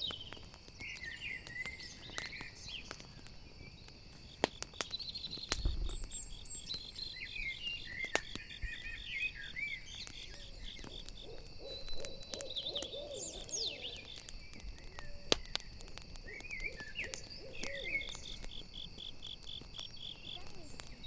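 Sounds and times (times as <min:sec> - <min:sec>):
campfire crackling: 0:00.0 - 0:21.0
crickets chirping: 0:00.0 - 0:21.0
owl hooting: 0:10.4 - 0:14.2, 0:16.2 - 0:18.4.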